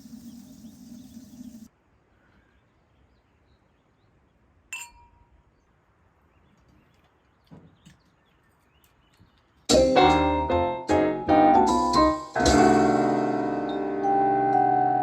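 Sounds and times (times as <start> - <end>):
piano music: 9.7 - 15.0.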